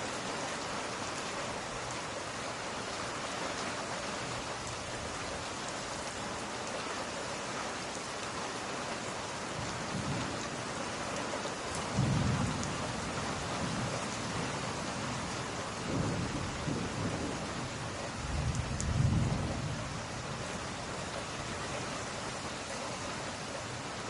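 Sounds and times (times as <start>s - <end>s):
steady rain: 0.0s - 24.0s
thunder rolling: 18.3s - 19.8s.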